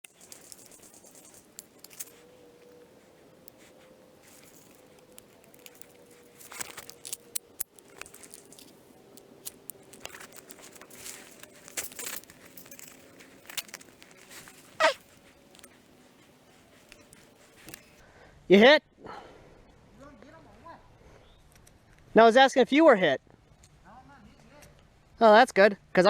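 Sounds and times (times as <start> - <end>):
rustling and crunching in brush: 0.0 - 18.0.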